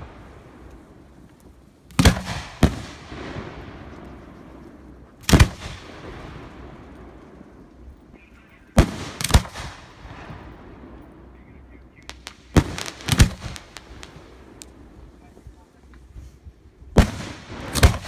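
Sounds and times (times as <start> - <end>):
firework shells bursting: 12.0 - 15.2, 17.0 - 18.0
small firework pops: 12.0 - 16.2.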